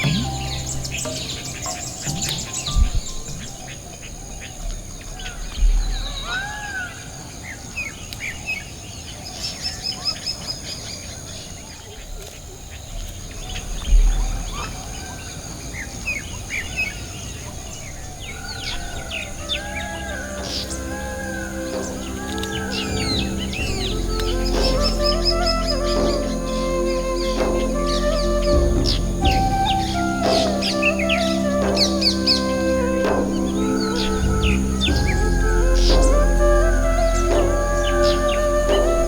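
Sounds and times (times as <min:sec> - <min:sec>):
low thumps: 0:00.0 - 0:03.9, 0:20.3 - 0:39.0
whistled bird calls: 0:00.0 - 0:08.7, 0:13.2 - 0:39.0
birds chirping: 0:00.0 - 0:39.0.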